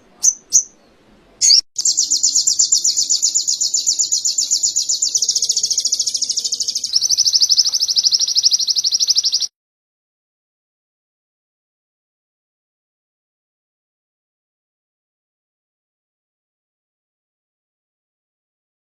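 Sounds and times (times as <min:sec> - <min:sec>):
songbird sharp high chirps: 0:00.0 - 0:09.5
songbird fast high trill: 0:01.4 - 0:09.5.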